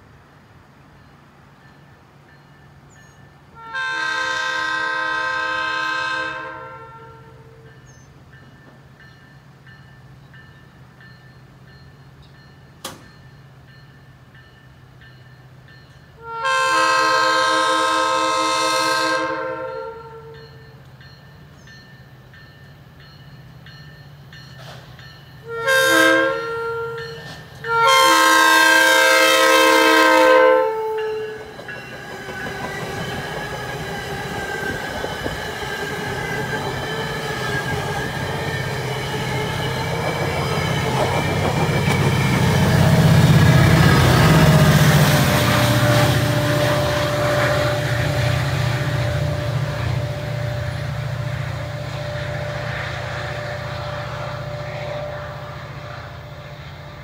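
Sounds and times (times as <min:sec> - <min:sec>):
train rumble and wheel clatter: 0:00.0 - 0:57.0
train horn blasts: 0:03.5 - 0:07.8, 0:16.2 - 0:20.8, 0:25.4 - 0:31.5, 0:41.8 - 0:56.8
diesel locomotive rumble: 0:20.4 - 0:57.0.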